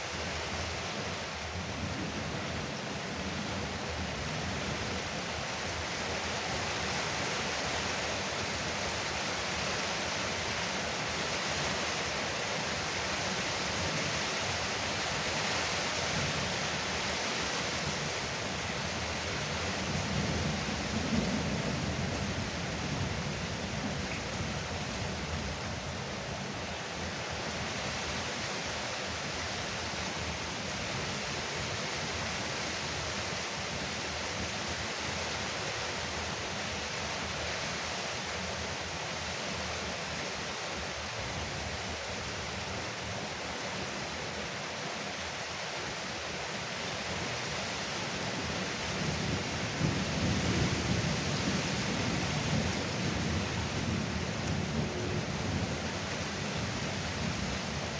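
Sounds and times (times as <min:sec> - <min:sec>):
rain on a roof: 0:00.0 - 0:57.9
thunder rumbling: 0:49.0 - 0:56.1.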